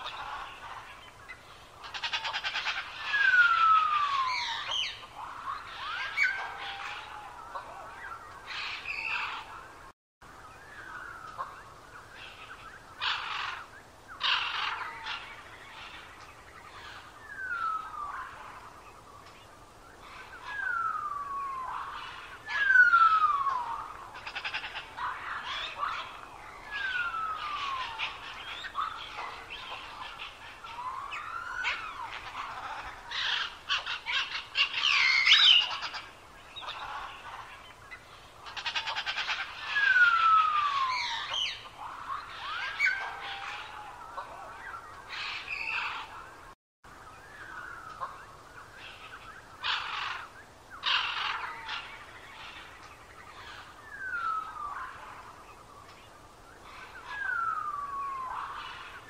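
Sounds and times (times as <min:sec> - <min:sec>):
bird chips and chattering calls: 0:20.0 - 0:44.0.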